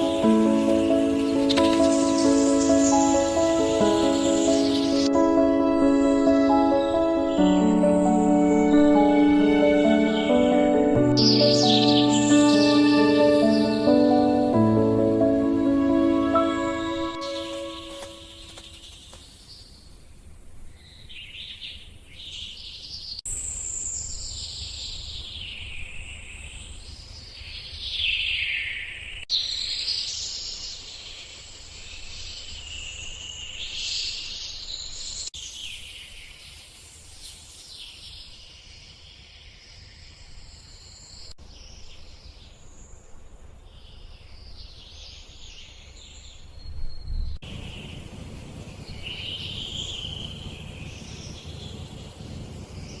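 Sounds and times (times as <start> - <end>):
insects calling: 0.0 - 19.4, 47.4 - 53.0
birds calling: 0.0 - 19.7.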